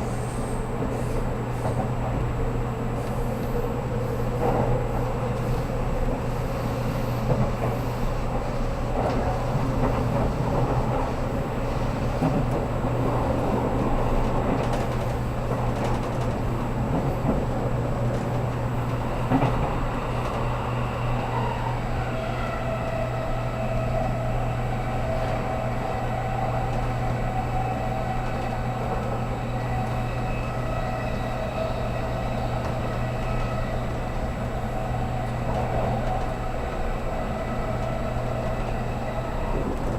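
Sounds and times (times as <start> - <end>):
rail and wheel noise: 0.0 - 39.9
train interior hum: 0.0 - 39.9.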